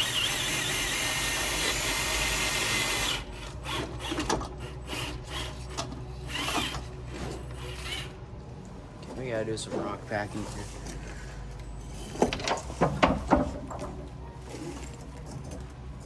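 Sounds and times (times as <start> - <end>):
electric motor whirring: 0.0 - 8.2.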